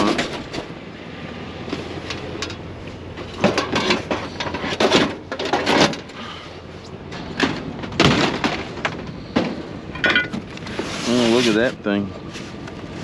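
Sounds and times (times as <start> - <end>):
scrap items clattering: 3.3 - 6.4, 7.2 - 12.6.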